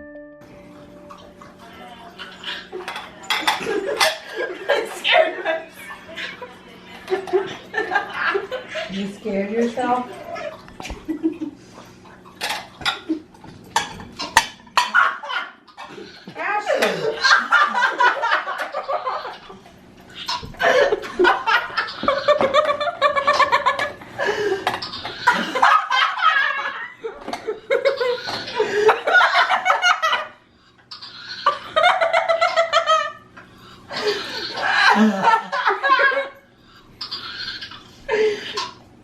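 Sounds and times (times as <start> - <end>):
person laughing hard: 20.4 - 30.3, 33.9 - 36.4.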